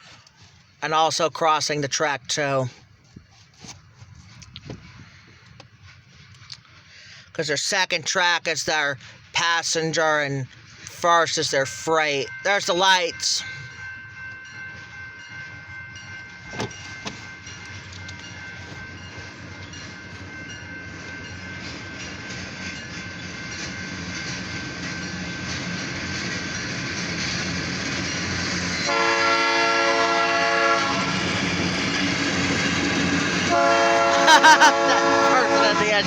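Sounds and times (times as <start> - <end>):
diesel locomotive approaching: 0.0 - 36.0
train horn: 28.8 - 31.4, 33.4 - 36.0.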